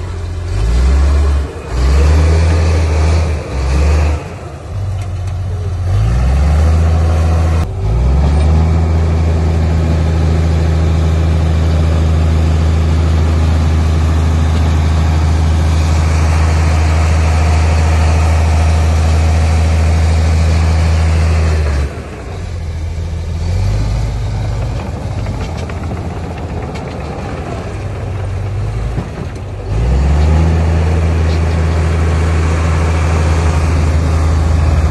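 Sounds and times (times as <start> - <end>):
heavy diesel engine revving: 0.0 - 34.9.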